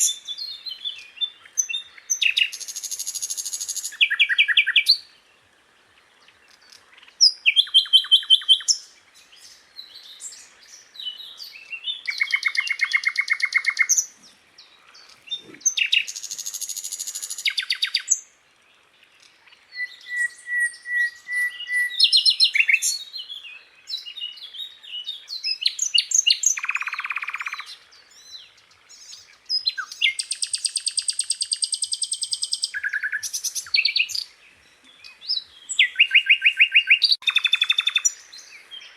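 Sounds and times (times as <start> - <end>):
bird singing high trills: 19.7 - 28.3, 28.9 - 34.3, 35.0 - 38.6.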